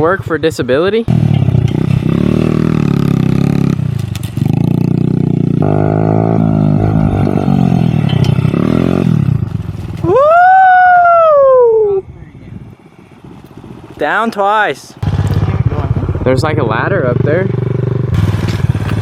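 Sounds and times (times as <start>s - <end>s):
off-road vehicle engine revving: 1.1s - 10.1s, 15.0s - 19.0s
person whooping: 10.0s - 12.0s.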